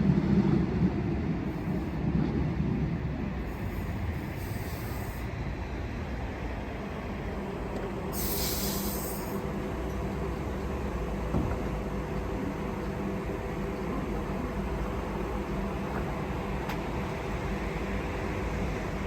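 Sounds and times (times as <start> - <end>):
train rumbling: 0.0 - 19.0
brief high hiss: 8.2 - 9.4.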